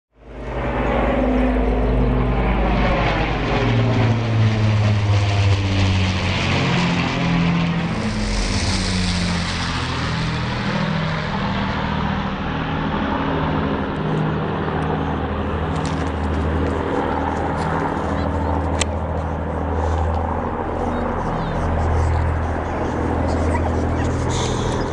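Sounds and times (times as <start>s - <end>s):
propeller plane engines droning: 0.2s - 24.9s.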